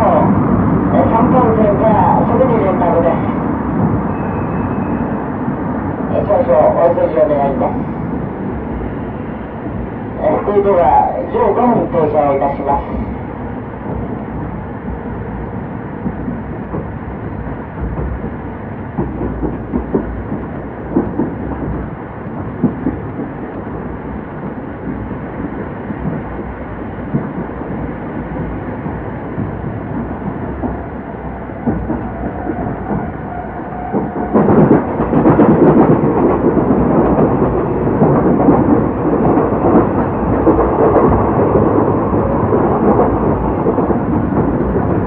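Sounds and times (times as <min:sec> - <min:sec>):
train coach running rumble: 0:00.0 - 0:45.0
wheels clacking over rail joints: 0:12.9 - 0:45.0.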